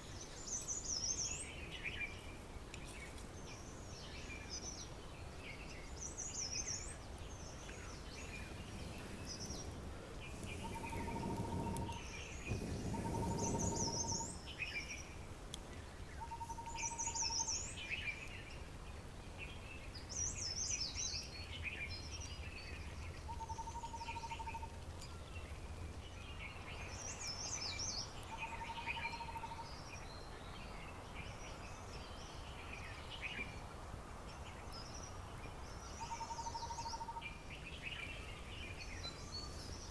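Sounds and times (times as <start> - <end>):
birds chirping and warbling: 5.5 - 15.0, 34.3 - 39.9
rustling: 7.7 - 14.4.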